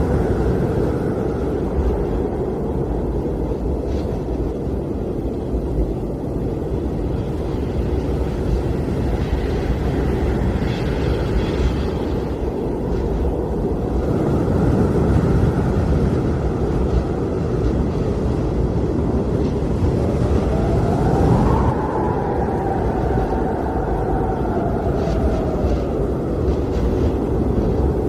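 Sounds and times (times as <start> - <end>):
blizzard wind rumbling: 0.0 - 28.0
thin wind whistle: 19.8 - 28.0.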